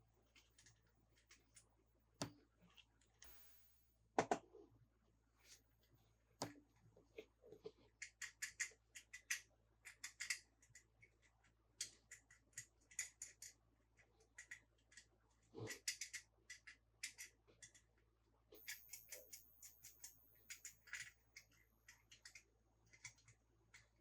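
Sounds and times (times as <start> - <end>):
clicks of toys being handled: 8.0 - 17.8.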